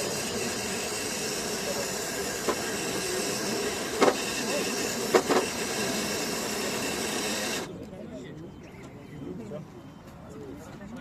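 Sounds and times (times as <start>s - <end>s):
toy truck electric motor whirring: 0.0s - 7.8s.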